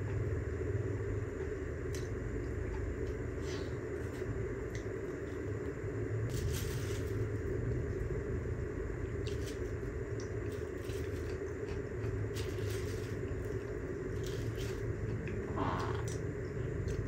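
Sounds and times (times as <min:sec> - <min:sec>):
steady low hum: 0:00.0 - 0:17.0
person chewing salad: 0:10.1 - 0:17.0.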